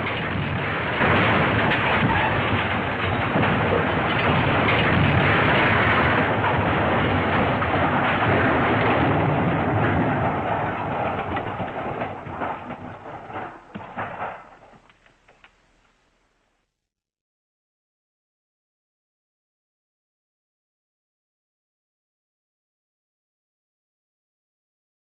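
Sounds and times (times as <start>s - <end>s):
clatters and knocks: 0.0s - 16.0s
rumble of tumbling wreckage: 0.0s - 16.5s.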